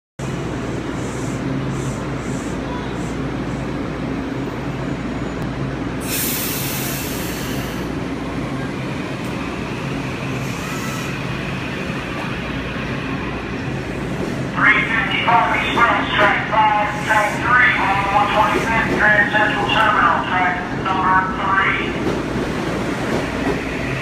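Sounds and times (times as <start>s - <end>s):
loud hiss: 6.0s - 7.9s.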